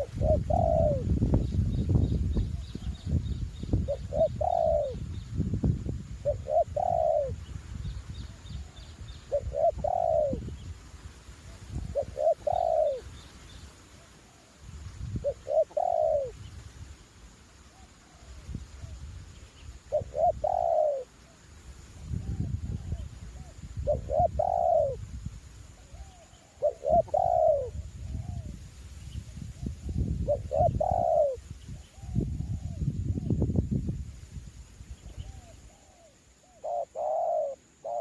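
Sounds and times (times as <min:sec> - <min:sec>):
dove cooing: 0:00.0 - 0:01.1, 0:03.8 - 0:05.0, 0:06.2 - 0:07.4, 0:08.6 - 0:10.5, 0:11.7 - 0:13.2, 0:15.2 - 0:16.4, 0:19.9 - 0:21.4, 0:22.1 - 0:25.1, 0:25.8 - 0:28.6, 0:30.3 - 0:32.8, 0:35.2 - 0:38.0
small birds chirping faintly: 0:00.0 - 0:05.5, 0:06.1 - 0:38.0
wind buffeting microphone: 0:00.0 - 0:13.2, 0:14.6 - 0:16.8, 0:21.9 - 0:35.6.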